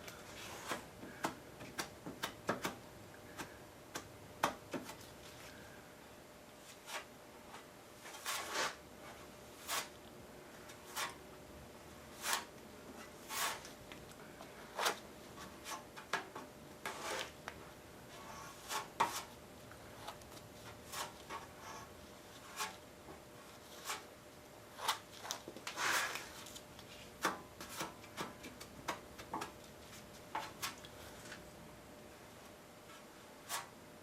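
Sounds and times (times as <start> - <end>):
faint shop hum: 0.0 - 34.0
hand scraping a surface: 0.1 - 1.9, 6.6 - 10.0, 10.6 - 11.2, 12.1 - 13.8, 14.4 - 17.4, 18.1 - 22.8, 23.4 - 24.1, 24.7 - 31.4, 32.9 - 33.8.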